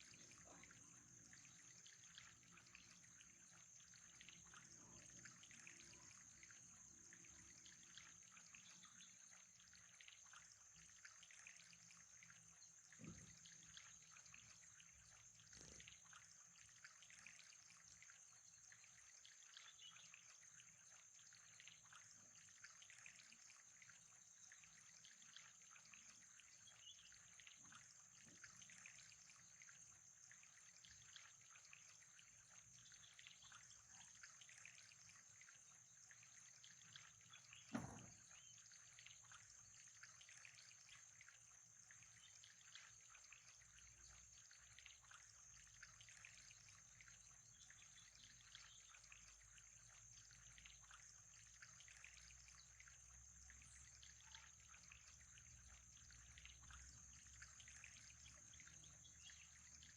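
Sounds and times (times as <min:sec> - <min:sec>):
faint trickling water: 0:00.0 - 0:59.9
dull thump: 0:37.7 - 0:38.2.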